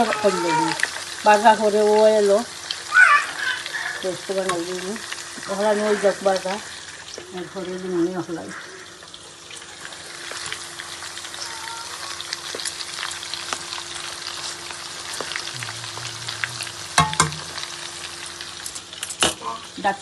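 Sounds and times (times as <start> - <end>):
chicken frying in hot oil: 0.0 - 20.0
sharp knocks against pan: 17.0 - 17.5.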